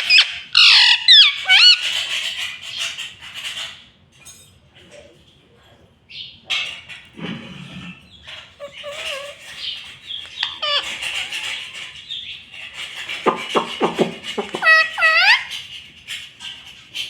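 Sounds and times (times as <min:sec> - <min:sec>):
parrot squawking: 0:00.0 - 0:02.8, 0:08.5 - 0:15.9.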